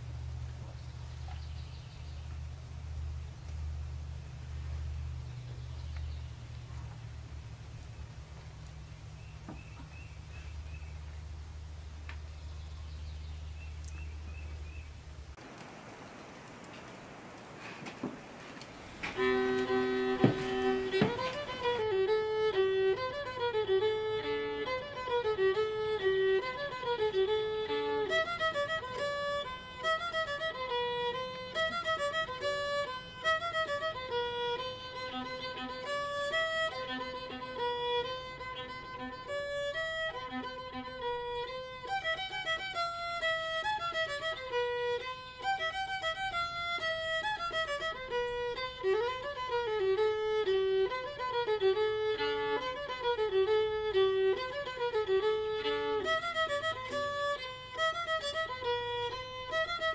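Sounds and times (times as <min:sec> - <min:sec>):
violin playing a tune: 0:18.6 - 0:59.9.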